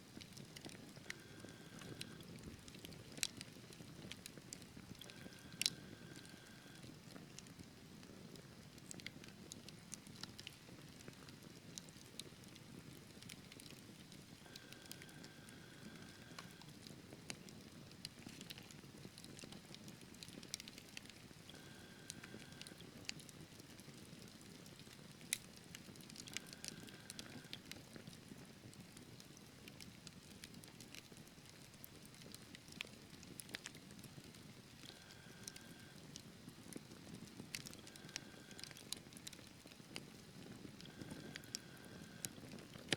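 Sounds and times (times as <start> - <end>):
fire popping: 0.1 - 42.9
wood fire crackling: 0.1 - 42.9.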